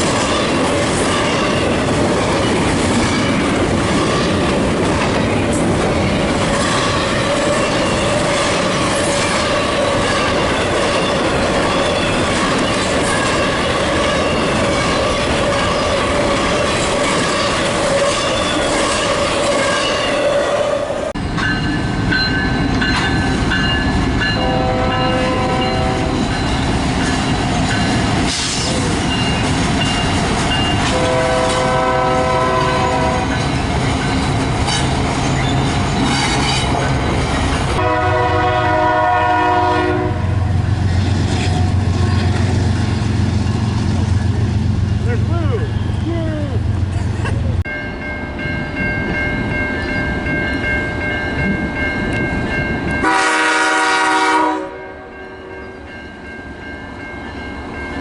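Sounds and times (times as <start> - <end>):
train wheels clattering over track: 0.0 - 20.1, 21.2 - 39.9
locomotive horn blasts: 24.4 - 26.2, 30.9 - 33.3, 37.8 - 40.5, 53.0 - 55.2.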